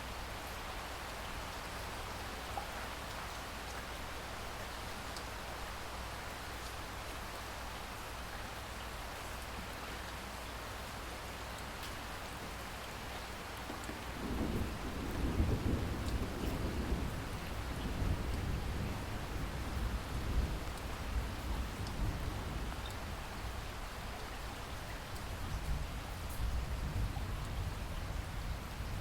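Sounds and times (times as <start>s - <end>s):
low thunder rumble: 14.0s - 22.8s.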